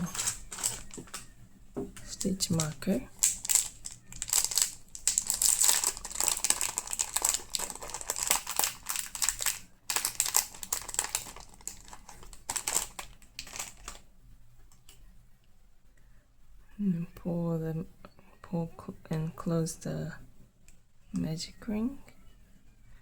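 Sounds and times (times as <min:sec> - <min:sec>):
yarn rustling and crinkling: 0:00.0 - 0:01.3, 0:02.0 - 0:14.0.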